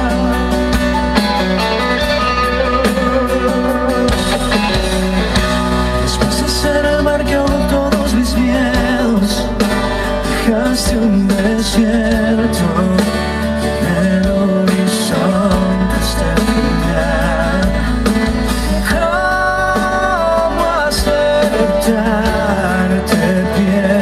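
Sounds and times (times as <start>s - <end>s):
wavering melody line: 0.0s - 8.0s
live band playing a ballad: 0.0s - 24.0s
steady bass: 0.0s - 24.0s.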